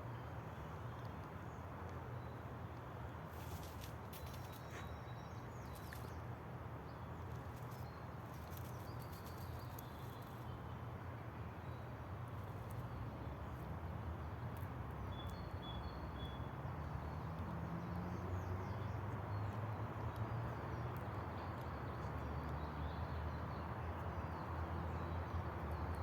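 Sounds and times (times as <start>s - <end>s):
faint clicks: 0.9s - 2.0s.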